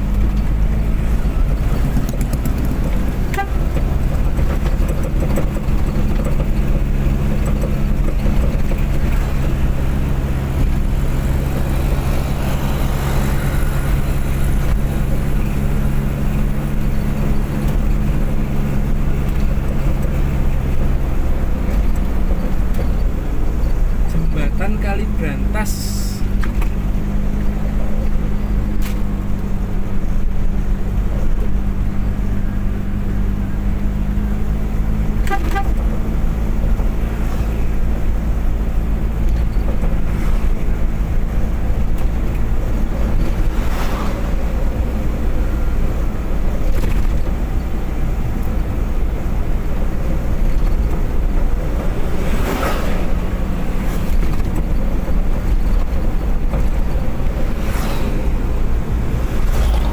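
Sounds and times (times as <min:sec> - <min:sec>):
car engine drone: 0:00.0 - 0:59.9
road noise: 0:00.0 - 0:59.9
vehicles passing: 0:00.0 - 0:59.9
car horn: 0:03.2 - 0:03.9, 0:35.2 - 0:36.0.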